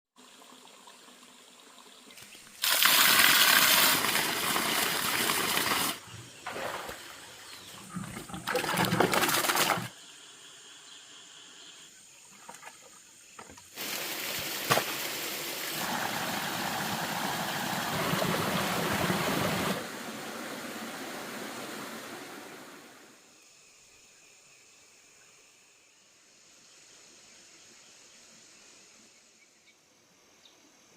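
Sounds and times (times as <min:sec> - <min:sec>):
water pouring and splashing: 0:00.2 - 0:10.0, 0:12.3 - 0:23.0.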